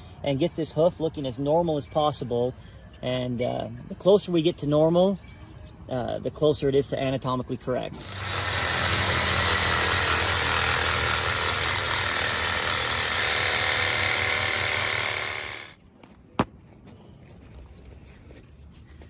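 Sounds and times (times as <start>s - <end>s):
reciprocating saw cutting hoof: 8.0s - 15.8s.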